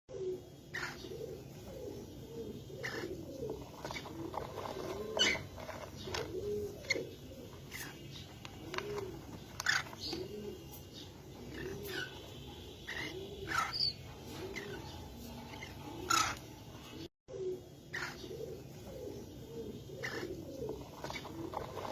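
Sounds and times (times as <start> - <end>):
pigeons cooing: 0.1 - 21.9.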